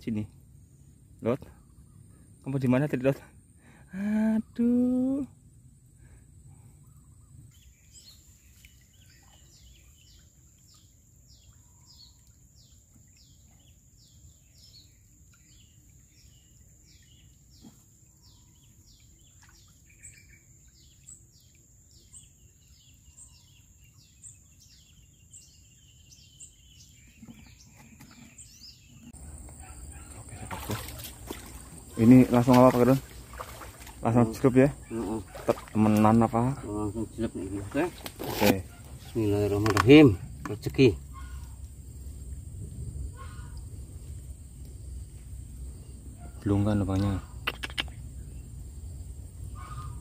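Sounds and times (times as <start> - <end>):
bird chirping: 6.7 - 42.0, 45.7 - 50.0.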